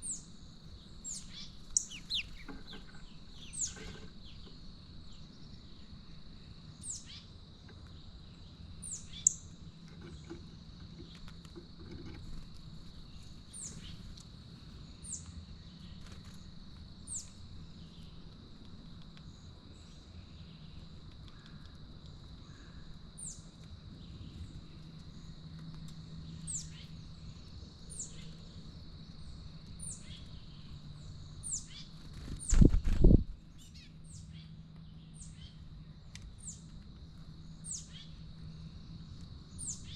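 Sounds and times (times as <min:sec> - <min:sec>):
bird chirping: 0:00.0 - 0:07.3, 0:08.2 - 0:10.4, 0:12.8 - 0:14.2, 0:26.1 - 0:28.5, 0:29.1 - 0:36.7, 0:37.4 - 0:39.9
low background hum: 0:00.0 - 0:39.9.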